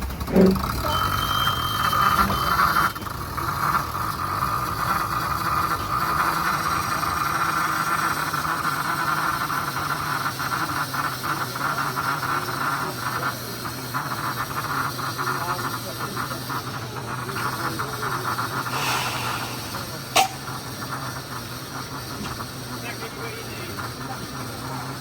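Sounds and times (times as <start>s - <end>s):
steam locomotive moving: 0.0s - 25.0s
high-pitched squealing: 18.7s - 20.7s.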